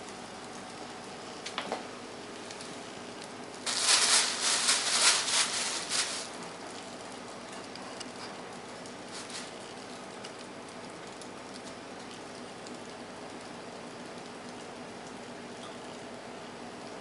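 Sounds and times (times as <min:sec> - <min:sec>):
plastic bags crinkling and rustling: 0:03.6 - 0:06.8, 0:09.0 - 0:10.1.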